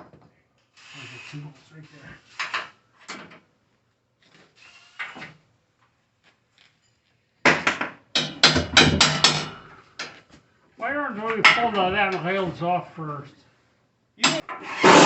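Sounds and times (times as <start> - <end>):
loud metal bangs and clatter: 7.5 - 9.8
metal knocks and clanks: 7.5 - 9.8, 11.3 - 12.2.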